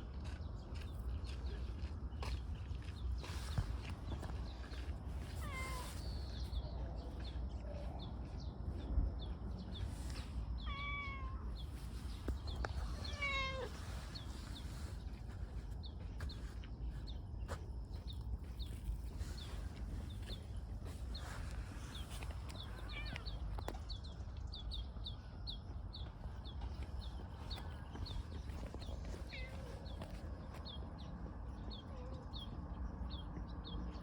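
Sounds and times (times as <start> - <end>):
cat meowing: 5.4 - 5.9, 10.6 - 11.5, 13.0 - 13.8, 22.7 - 23.4.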